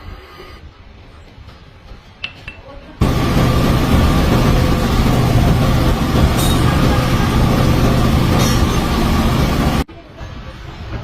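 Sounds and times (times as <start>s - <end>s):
workshop machinery humming: 3.0s - 9.9s.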